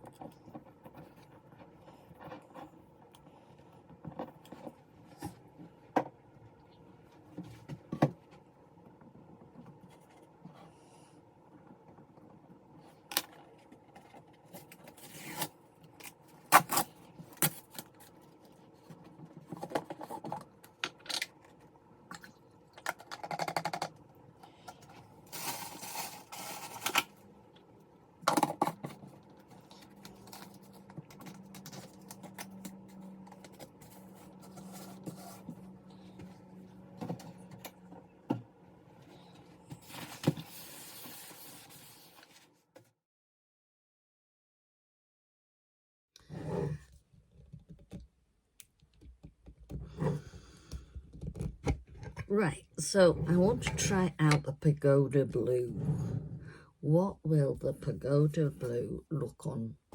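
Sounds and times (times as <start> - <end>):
scraping and rustling: 28.7 - 36.2.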